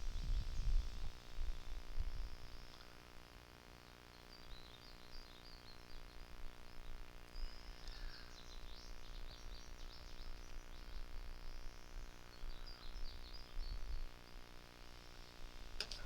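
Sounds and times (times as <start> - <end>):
small birds chirping: 4.0 - 16.0.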